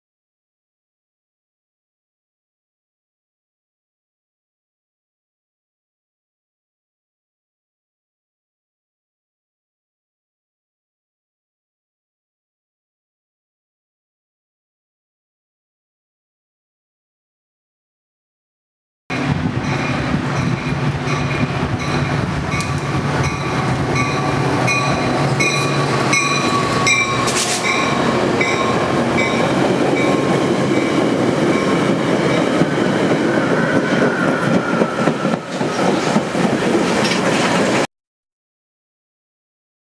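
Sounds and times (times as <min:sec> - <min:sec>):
diesel locomotive engine hum: 0:19.1 - 0:37.9
train wheels clattering over rails: 0:19.2 - 0:37.9
high ringing tone: 0:23.3 - 0:32.5.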